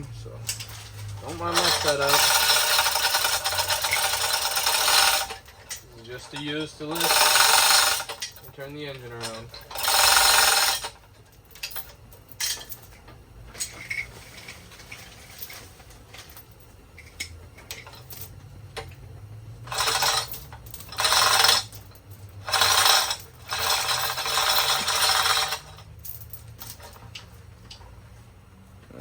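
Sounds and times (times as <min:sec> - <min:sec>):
metal clanking and rattling: 0:00.4 - 0:19.0.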